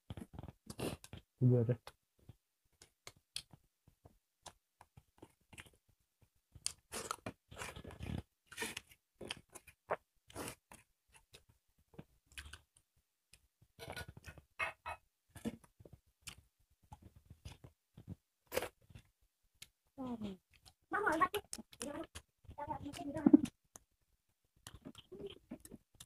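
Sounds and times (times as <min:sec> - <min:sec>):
chewing and crunching: 0:04.4 - 0:05.9, 0:06.5 - 0:14.7, 0:15.3 - 0:19.8, 0:20.4 - 0:23.9, 0:24.5 - 0:26.0.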